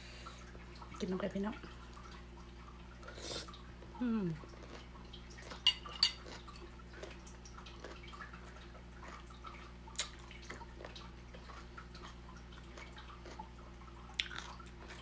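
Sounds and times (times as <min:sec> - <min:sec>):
wet chewing: 0:03.5 - 0:15.0.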